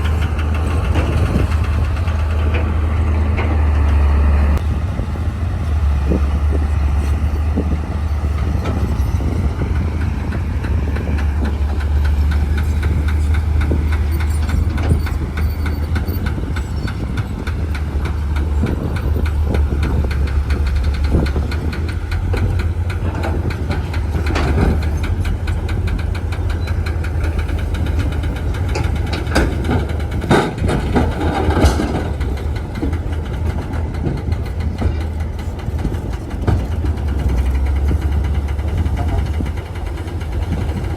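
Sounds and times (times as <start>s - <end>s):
bulldozer diesel engine throbbing: 0.0s - 40.9s
metal clanks: 8.3s - 40.9s.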